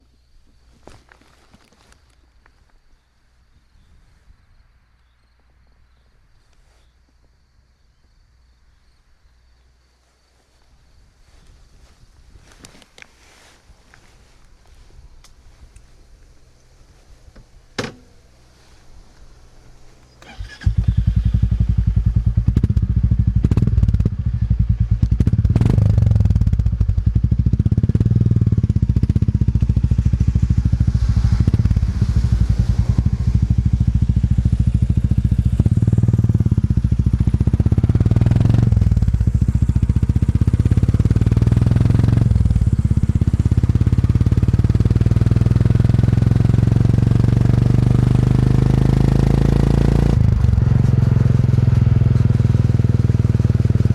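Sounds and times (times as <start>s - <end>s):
motorcycle engine running: 19.8s - 53.9s.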